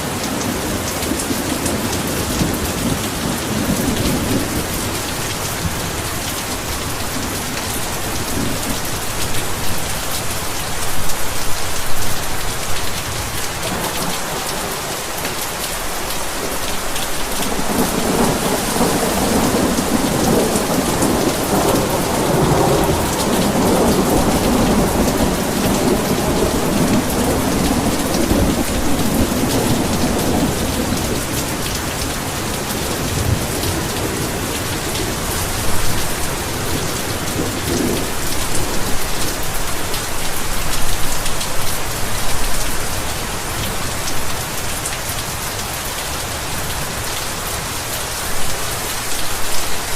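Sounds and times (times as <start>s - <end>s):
heavy rain pouring: 0.0s - 49.9s
rolling thunder: 16.4s - 39.5s.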